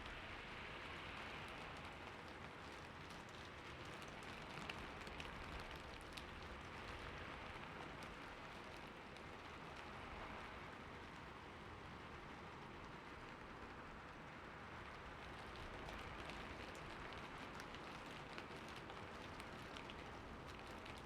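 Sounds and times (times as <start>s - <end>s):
rain on hard surfaces: 0.0s - 21.0s
raindrop ticks: 1.2s - 11.2s, 12.4s - 21.0s.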